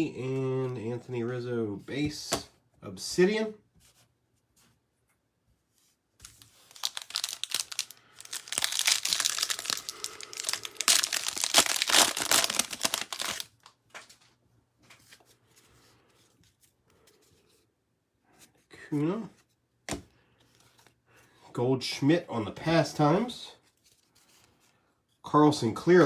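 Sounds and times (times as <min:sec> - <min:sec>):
faint rustles of cards: 0:03.1 - 0:21.5, 0:22.3 - 0:25.4
wrapper tearing and crinkling: 0:06.2 - 0:14.2.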